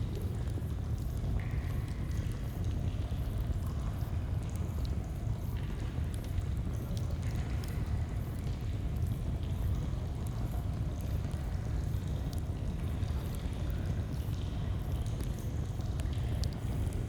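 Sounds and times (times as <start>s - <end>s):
faint campfire crackles: 13.9s - 17.0s.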